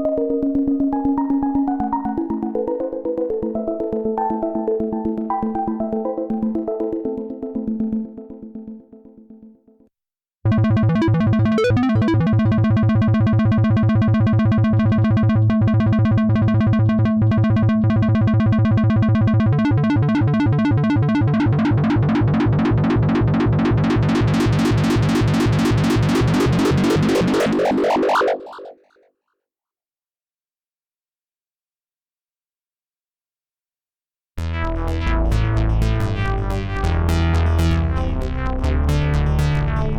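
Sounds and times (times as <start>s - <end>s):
repeated synth notes arpeggio: 0.0s - 9.3s, 13.8s - 28.7s, 34.7s - 39.9s.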